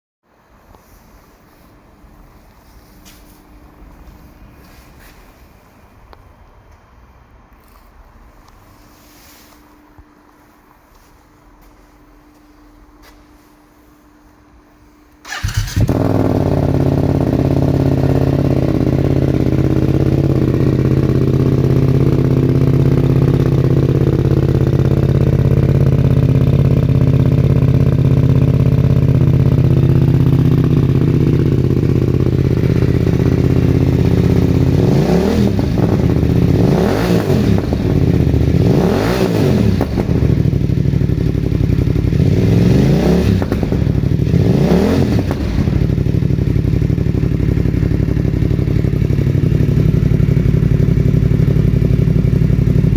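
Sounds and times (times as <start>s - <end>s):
motorcycle engine idling: 15.3s - 52.9s
motorcycle engine revving: 15.3s - 52.9s.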